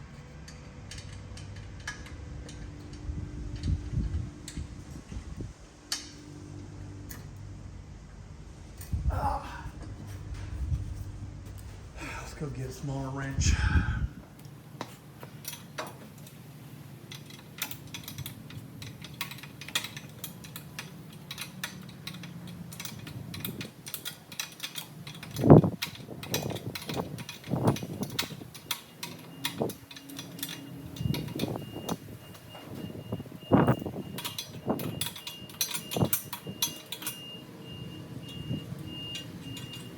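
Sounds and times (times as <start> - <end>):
metal hand tools clinking: 17.1 - 32.0, 33.7 - 37.3.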